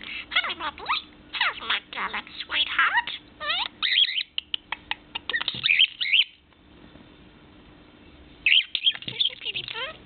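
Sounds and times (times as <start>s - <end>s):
budgerigar chirping: 0.8s - 6.4s, 8.4s - 10.0s.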